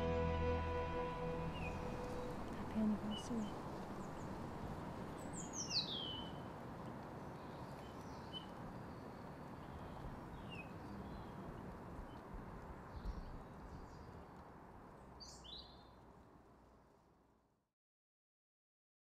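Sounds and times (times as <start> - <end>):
low background hiss and rumble: 0.0 - 5.6.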